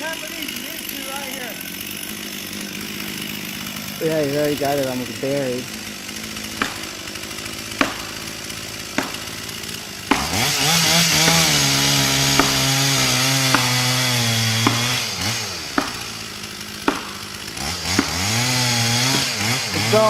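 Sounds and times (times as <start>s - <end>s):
chainsaw idling and revving: 0.0s - 20.0s
maul striking wedges: 6.5s - 19.6s.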